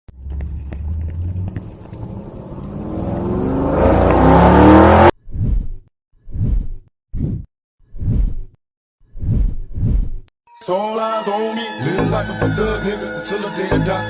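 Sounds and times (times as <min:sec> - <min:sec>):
car engine revving: 0:00.1 - 0:05.1
bass beats of music: 0:11.8 - 0:14.0.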